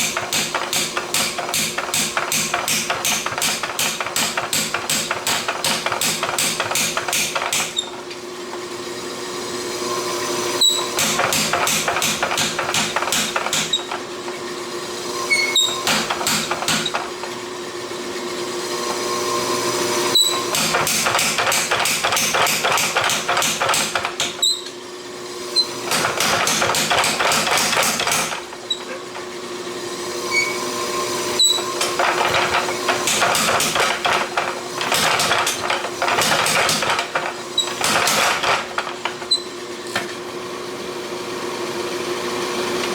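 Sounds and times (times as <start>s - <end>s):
hammer striking steel on anvil: 0.0s - 7.8s.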